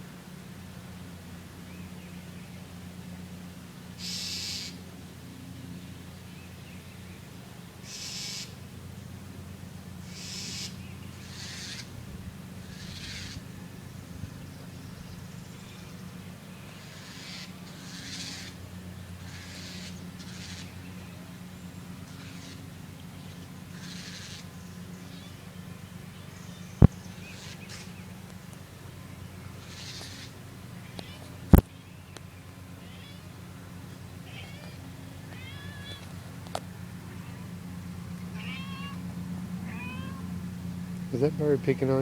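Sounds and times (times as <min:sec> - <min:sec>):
steady low hum: 0:00.0 - 0:42.0
bird harsh alarm calls: 0:04.0 - 0:04.8, 0:07.8 - 0:08.6, 0:10.0 - 0:12.0, 0:12.6 - 0:13.5, 0:16.6 - 0:18.6, 0:19.2 - 0:20.9, 0:22.0 - 0:25.4, 0:26.4 - 0:28.1, 0:29.6 - 0:31.2, 0:38.4 - 0:39.0.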